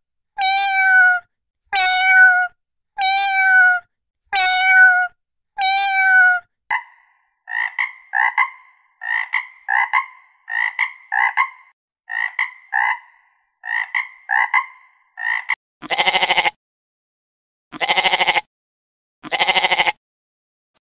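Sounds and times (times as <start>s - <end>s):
cat meowing: 0.4s - 6.5s, 15.8s - 16.5s, 17.8s - 18.4s, 19.3s - 19.9s
frog croaking: 6.7s - 15.6s
sheep bleating: 15.8s - 16.6s, 17.7s - 18.5s, 19.2s - 20.0s.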